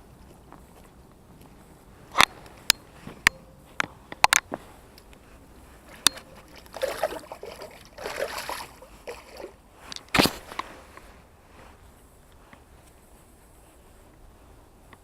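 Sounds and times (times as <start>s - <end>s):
water sloshing and splashing: 4.6s - 10.9s.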